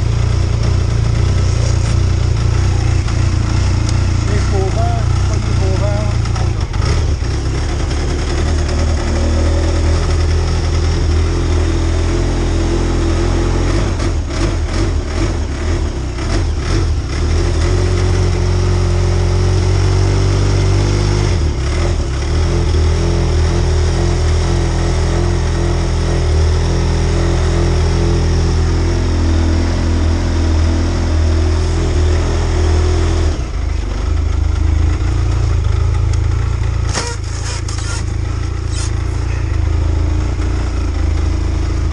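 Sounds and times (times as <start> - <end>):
snowmobile engine idling: 0.0 - 12.2, 33.4 - 41.9.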